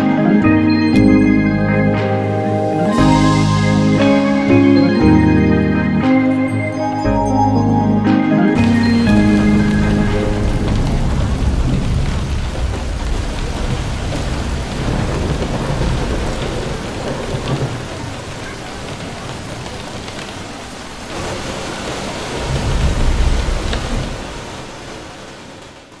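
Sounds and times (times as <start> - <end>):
steady rain: 8.3 - 26.0
low rolling thunder: 9.1 - 20.0, 22.2 - 24.6.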